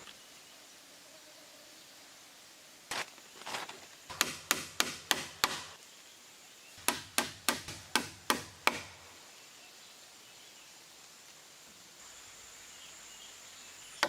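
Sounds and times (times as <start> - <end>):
hand tool striking wood: 4.1 - 5.8, 6.8 - 9.0.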